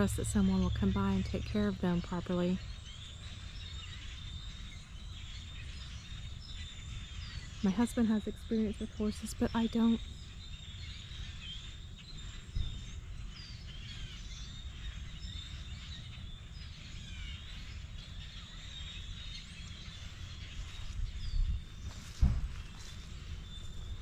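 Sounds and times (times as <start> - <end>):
low rumble: 0.0 - 5.1
small birds chirping: 0.0 - 24.0
single bump: 21.9 - 23.0.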